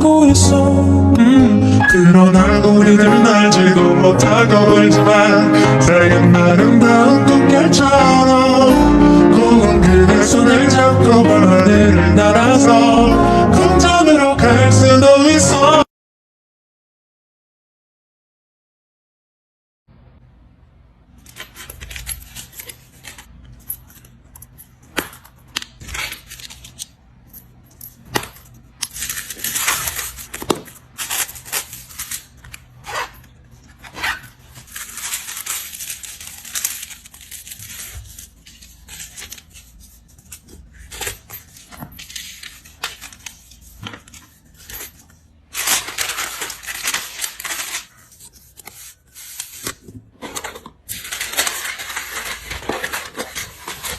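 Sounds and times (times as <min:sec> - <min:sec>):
plastic packaging crinkling: 0:21.2 - 0:53.9.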